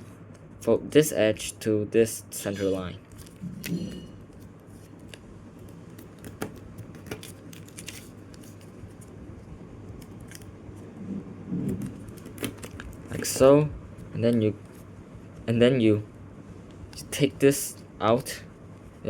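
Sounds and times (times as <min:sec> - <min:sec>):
paper being folded and creased: 0:04.3 - 0:09.1, 0:09.9 - 0:10.5, 0:11.7 - 0:13.4.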